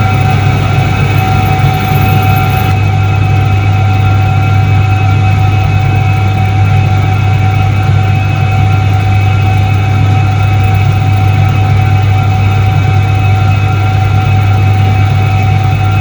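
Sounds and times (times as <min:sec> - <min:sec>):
washing machine humming: 0:00.0 - 0:04.4
faint steady whine: 0:00.0 - 0:16.0.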